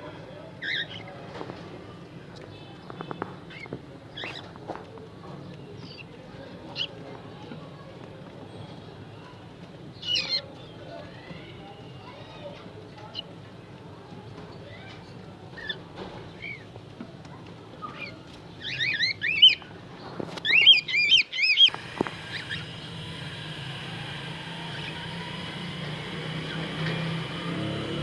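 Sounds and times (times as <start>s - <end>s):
steady low hum: 21.7s - 28.0s.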